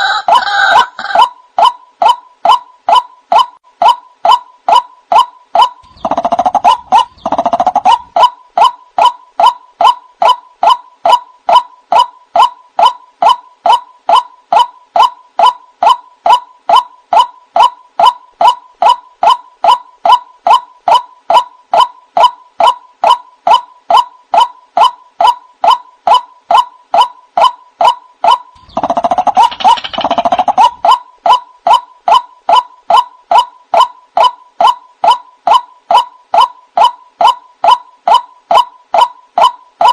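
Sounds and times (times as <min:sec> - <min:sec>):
waterhen calling: 0:00.0 - 0:16.8, 0:27.8 - 0:37.4.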